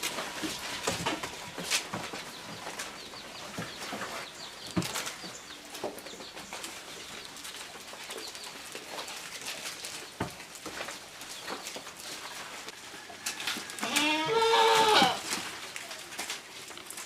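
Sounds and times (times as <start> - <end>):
rustling and snapping foliage: 0.0 - 17.0
goat bleating: 13.8 - 15.3.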